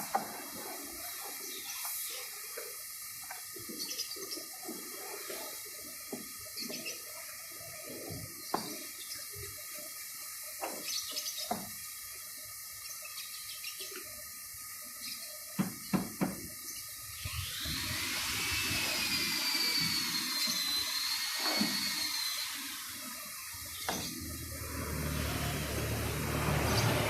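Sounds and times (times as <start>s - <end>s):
water spraying hiss: 0.0s - 27.0s
wavering high whine: 17.1s - 27.0s.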